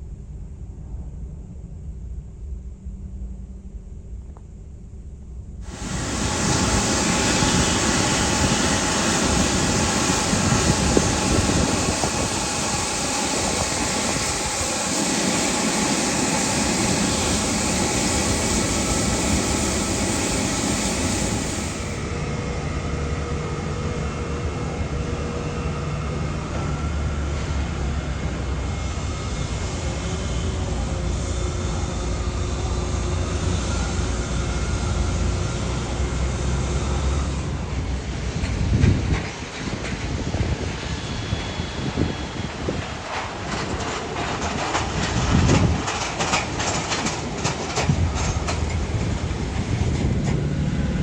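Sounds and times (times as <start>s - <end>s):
jet engines roaring: 5.6s - 51.0s
high hiss: 5.7s - 22.3s.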